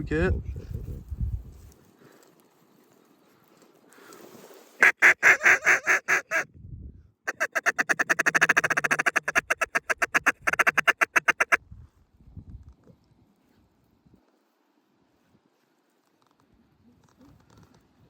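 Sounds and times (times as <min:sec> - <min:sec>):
duck call quacks: 0:04.8 - 0:06.4, 0:07.3 - 0:11.6
duck call rattling chatter: 0:04.8 - 0:06.4, 0:07.3 - 0:11.6.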